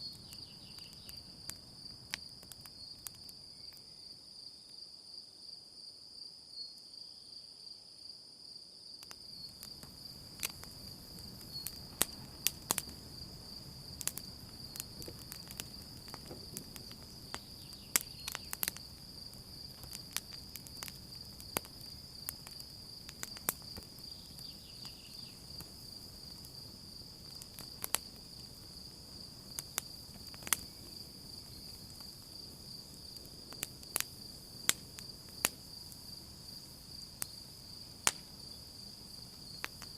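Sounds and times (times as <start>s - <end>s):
campfire crackling and popping: 0.0s - 3.8s, 9.0s - 39.9s
crickets chirring: 0.0s - 39.9s.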